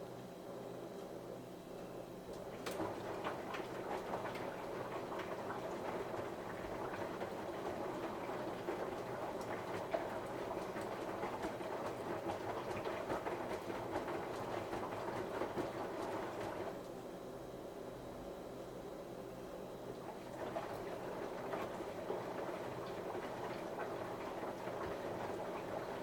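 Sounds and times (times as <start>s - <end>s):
washing machine drum churning: 2.2s - 16.9s, 17.8s - 26.0s.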